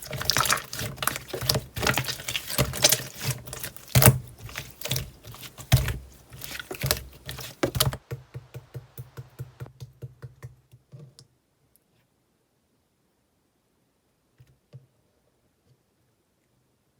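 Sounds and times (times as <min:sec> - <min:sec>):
slime squished by hand: 0:00.0 - 0:08.1.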